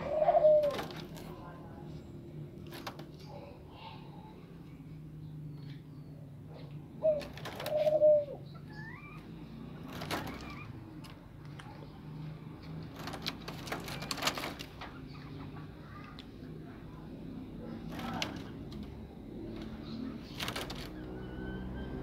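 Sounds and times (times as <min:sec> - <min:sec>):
clicks and rustles: 0:00.6 - 0:01.5, 0:02.5 - 0:03.4, 0:06.6 - 0:08.0, 0:09.8 - 0:12.0, 0:12.6 - 0:16.4, 0:17.8 - 0:21.1
low bird calls: 0:05.3 - 0:10.8, 0:19.5 - 0:22.0
high bird chirp: 0:19.8 - 0:22.0.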